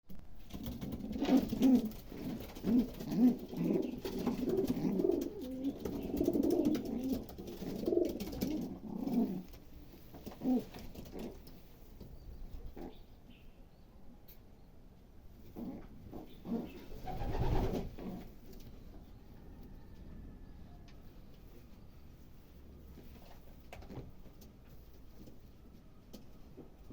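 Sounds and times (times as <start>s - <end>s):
pigeons cooing: 0.6s - 9.6s, 10.2s - 11.6s, 15.5s - 18.8s.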